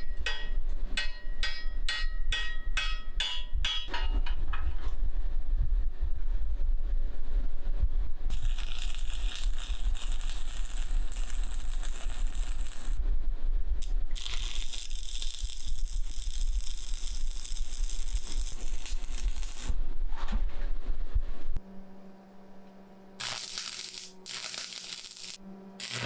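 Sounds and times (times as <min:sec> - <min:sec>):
steady low hum: 0:00.0 - 0:26.0
arc welding crackle: 0:08.3 - 0:13.0, 0:13.8 - 0:19.8, 0:23.2 - 0:26.0.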